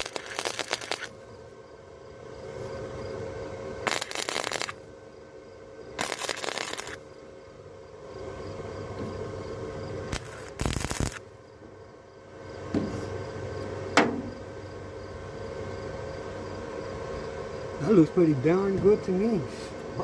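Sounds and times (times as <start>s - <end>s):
welding arc crackling: 0.0s - 1.3s, 3.8s - 4.8s, 6.0s - 7.1s, 10.1s - 11.4s
welder machine hum: 0.0s - 20.0s.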